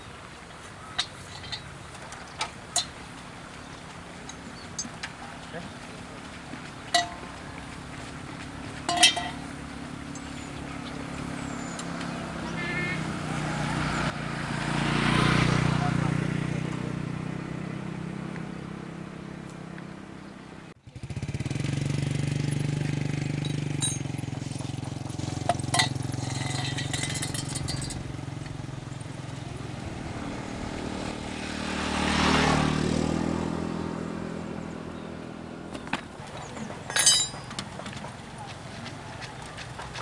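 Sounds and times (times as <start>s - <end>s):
tractor engine running: 0.0s - 13.0s, 20.8s - 31.8s, 32.7s - 40.0s.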